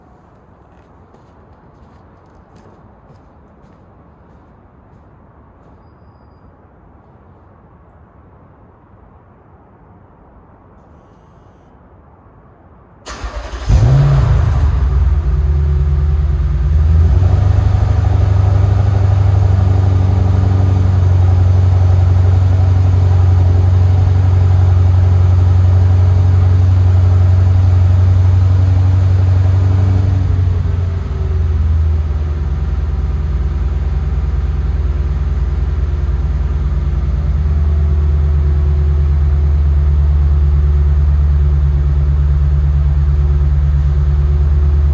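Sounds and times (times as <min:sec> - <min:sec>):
car engine cold start and idle: 0:13.1 - 0:44.9.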